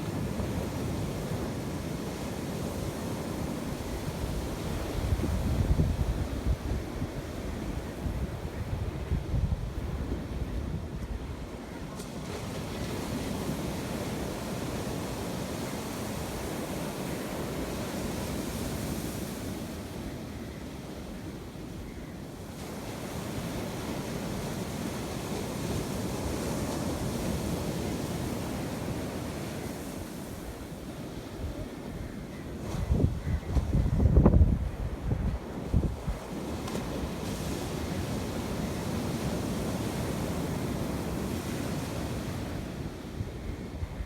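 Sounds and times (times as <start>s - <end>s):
wind buffeting microphone: 3.8s - 11.5s, 32.6s - 38.5s.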